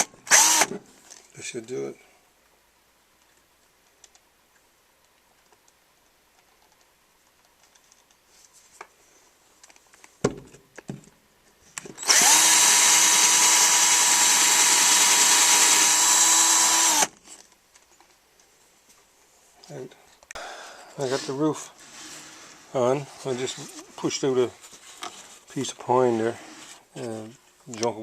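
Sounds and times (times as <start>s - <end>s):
electric drill running: 0.0s - 0.7s, 12.0s - 17.1s.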